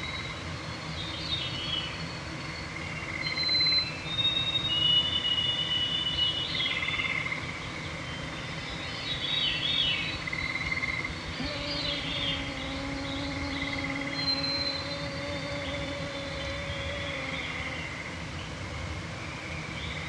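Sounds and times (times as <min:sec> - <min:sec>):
songbird chorus: 0:09.0 - 0:18.5
mosquito whining: 0:11.3 - 0:18.1.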